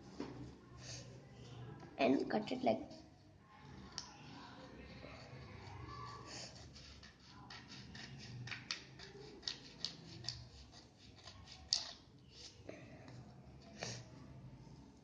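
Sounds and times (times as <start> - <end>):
scissors snipping paper: 6.5 - 12.0.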